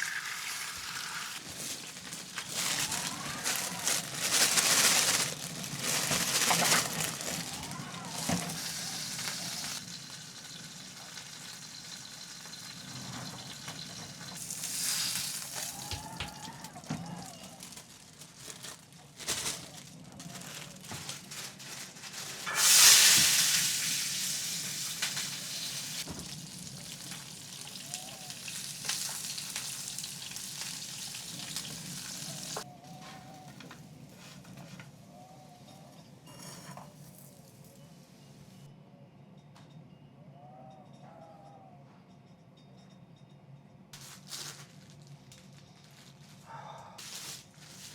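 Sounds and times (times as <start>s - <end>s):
food frying in hot oil: 0.0s - 3.0s, 8.2s - 16.3s, 22.4s - 32.7s.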